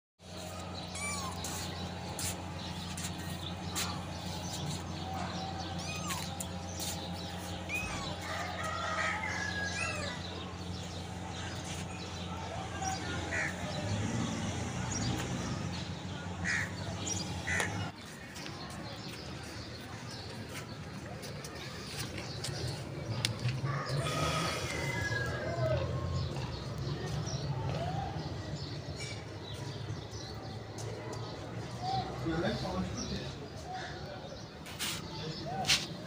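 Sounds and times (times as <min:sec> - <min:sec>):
bird chirps and calls: 0:00.6 - 0:13.5.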